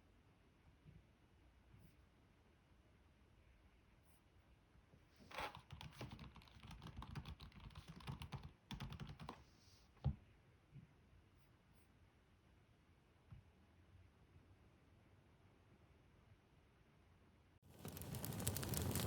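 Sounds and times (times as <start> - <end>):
keyboard typing: 5.5 - 9.4.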